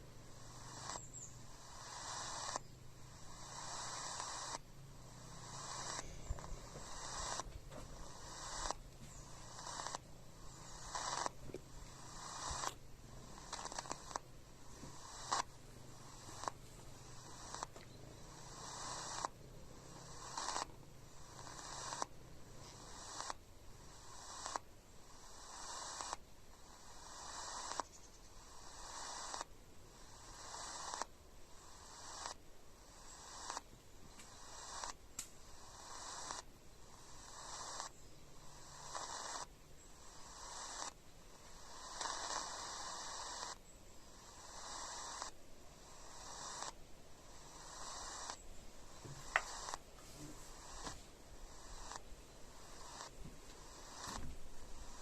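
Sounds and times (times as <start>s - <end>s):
radio tuning clicks: 0.0s - 23.4s, 47.4s - 51.0s, 51.6s - 55.0s
radio static hiss: 0.0s - 55.0s.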